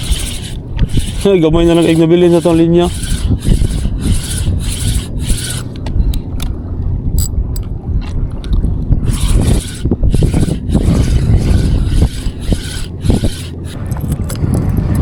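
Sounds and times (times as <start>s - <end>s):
rhythmic scraping: 0.0s - 5.7s, 9.0s - 15.0s
low wind rumble: 0.0s - 15.0s.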